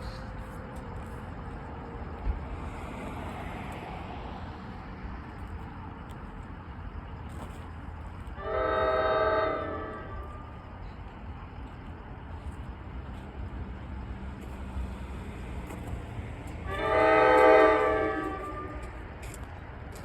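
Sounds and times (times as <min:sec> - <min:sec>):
train rumbling: 0:00.0 - 0:20.0
locomotive air horn blast: 0:08.4 - 0:10.5, 0:16.6 - 0:19.0.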